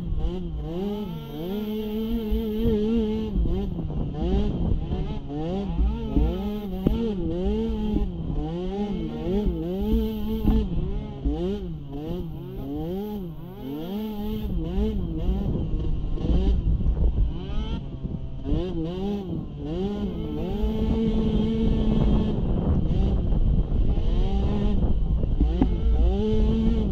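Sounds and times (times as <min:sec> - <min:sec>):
atv engine revving: 0:00.0 - 0:26.9.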